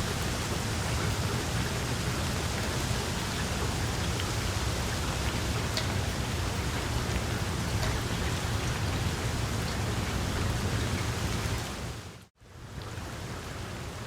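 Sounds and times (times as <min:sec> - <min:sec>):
wood fire hissing and rumbling: 0:00.0 - 0:14.0.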